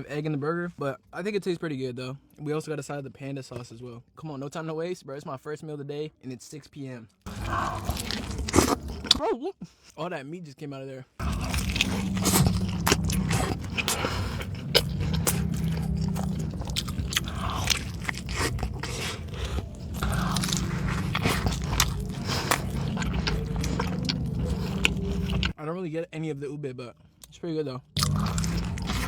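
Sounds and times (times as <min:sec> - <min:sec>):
biting and chewing: 0:07.3 - 0:09.2, 0:11.2 - 0:25.6, 0:28.0 - 0:29.0
steady low hum: 0:07.3 - 0:09.2, 0:11.2 - 0:25.6, 0:28.0 - 0:29.0
wet mouth clicks and smacks: 0:11.3 - 0:25.5.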